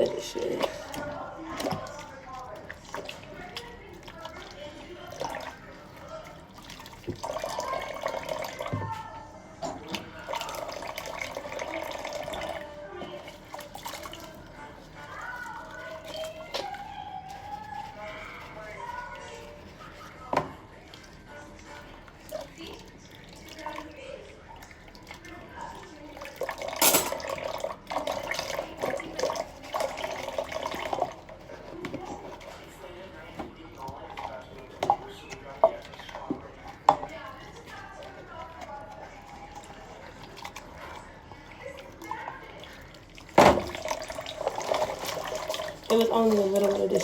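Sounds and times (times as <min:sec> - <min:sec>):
faucet running into sink: 0:00.0 - 0:47.0
dishes clinking in basin: 0:26.4 - 0:31.1
tap running into sink: 0:43.3 - 0:44.0.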